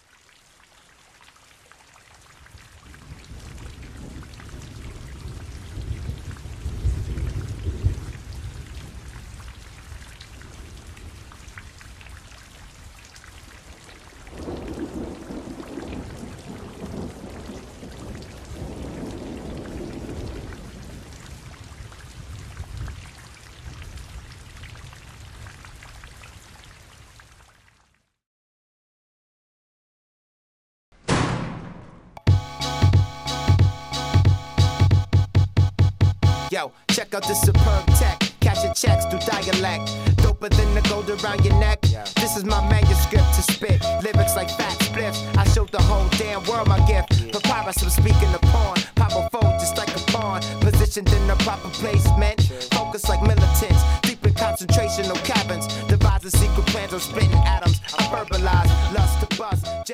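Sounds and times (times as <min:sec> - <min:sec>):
rain falling steadily: 0:00.0 - 0:28.2, 0:36.4 - 0:54.8
thunder rumbling: 0:02.8 - 0:12.0, 0:14.3 - 0:25.4, 0:45.4 - 0:48.8.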